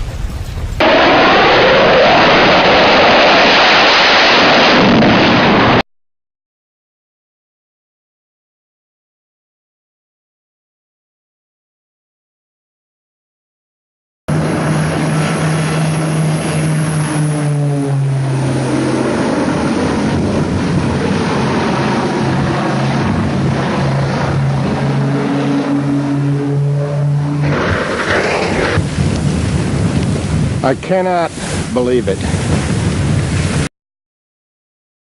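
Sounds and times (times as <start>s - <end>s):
propeller aircraft engine droning: 0.0s - 5.8s, 14.3s - 33.7s
rushing noise: 0.0s - 5.8s, 14.3s - 33.7s.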